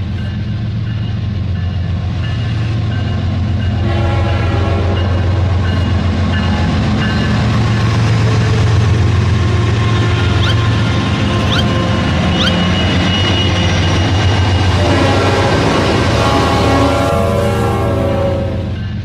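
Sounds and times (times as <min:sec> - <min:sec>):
train rumbling: 0:00.0 - 0:19.0
short rising chirp: 0:10.4 - 0:10.8, 0:11.4 - 0:13.6.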